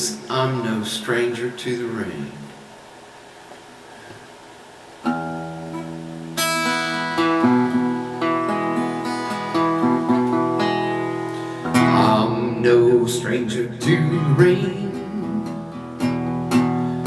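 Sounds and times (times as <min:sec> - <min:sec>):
acoustic guitar strumming chords: 0:05.0 - 0:17.0.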